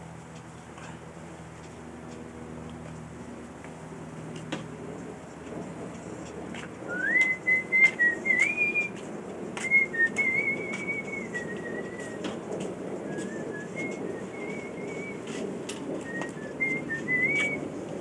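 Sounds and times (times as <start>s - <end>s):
wood fire crackling and popping: 5.5s - 18.0s
high wavering whistle: 6.9s - 8.9s, 9.6s - 12.4s, 13.0s - 15.4s, 16.0s - 17.7s.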